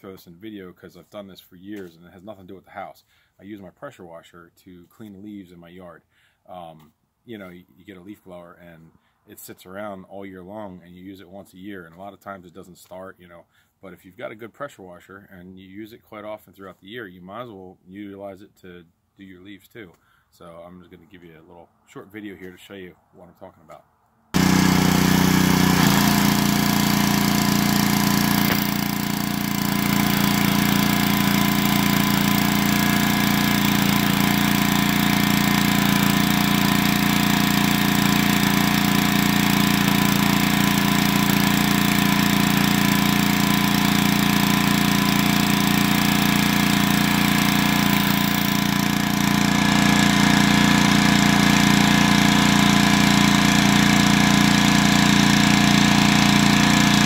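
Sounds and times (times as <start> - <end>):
pressure washer engine running: 24.4 - 57.0.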